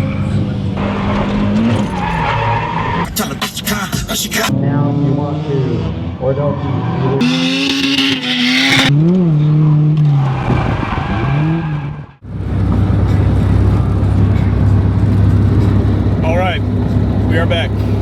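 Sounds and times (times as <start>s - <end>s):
car engines revving: 0.0s - 18.0s
low engine drone: 12.2s - 18.0s.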